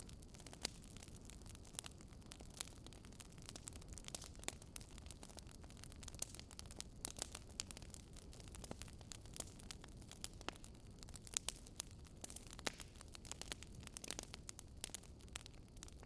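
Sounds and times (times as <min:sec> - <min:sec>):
low rumble of flames: 0:00.0 - 0:16.0
wood fire popping and snapping: 0:00.0 - 0:16.0.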